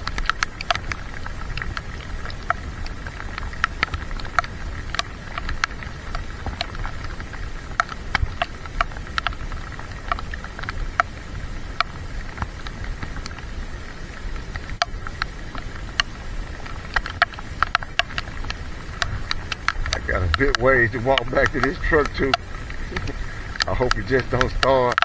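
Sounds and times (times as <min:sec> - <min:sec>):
raindrops tapping on plastic case: 0:14.3 - 0:25.0
steady low rumble: 0:18.3 - 0:25.0.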